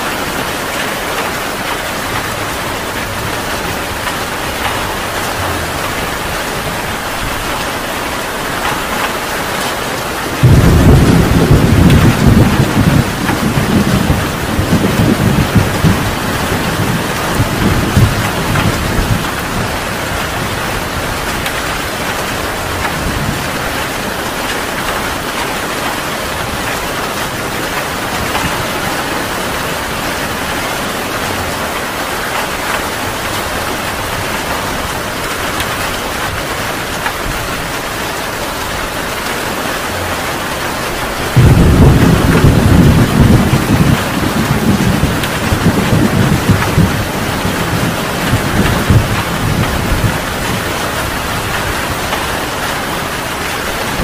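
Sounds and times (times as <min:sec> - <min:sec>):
heavy rain falling: 0:00.0 - 0:54.0
deep rolling thunder: 0:08.5 - 0:24.3, 0:41.1 - 0:52.8.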